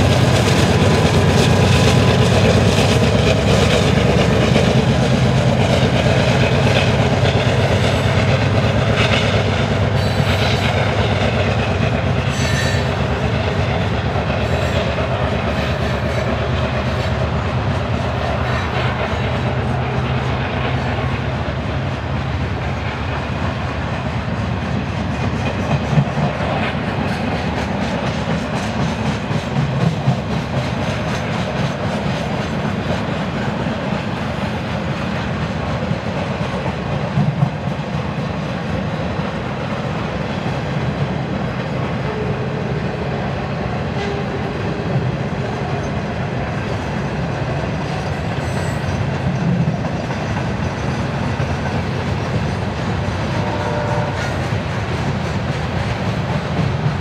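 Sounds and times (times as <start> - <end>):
clickety-clack over rail joints: 0.0 - 57.0
steel wheels rumbling on rail: 0.0 - 57.0.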